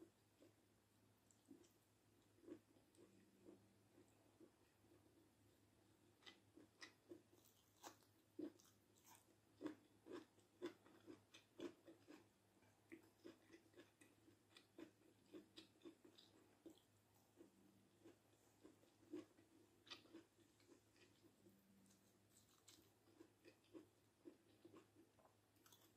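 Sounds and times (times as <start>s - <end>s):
chewing food: 1.2s - 5.2s, 6.0s - 25.9s.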